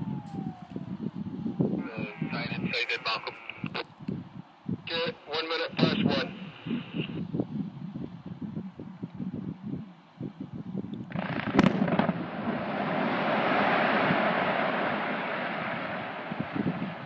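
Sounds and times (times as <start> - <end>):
rock blast cracks: 11.1 - 17.0
rolling rumble: 11.1 - 17.0.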